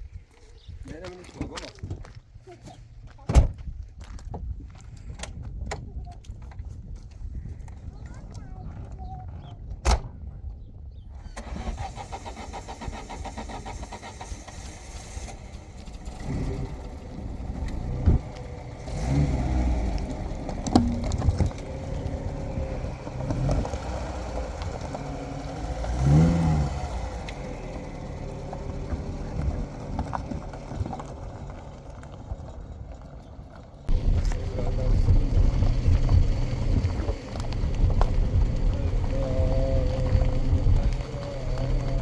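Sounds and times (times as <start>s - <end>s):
pickup truck engine running: 11.4s - 42.0s
irregular knocks and bumps: 20.0s - 23.8s, 33.9s - 42.0s.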